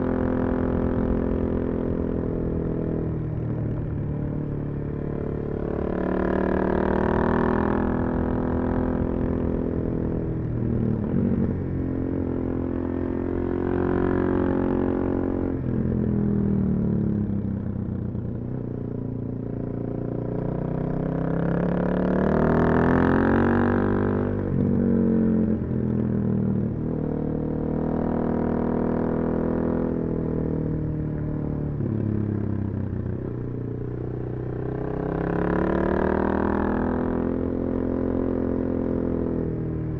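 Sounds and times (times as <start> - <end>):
motorcycle engine revving: 4.6 - 9.8, 20.4 - 30.6, 31.7 - 39.6.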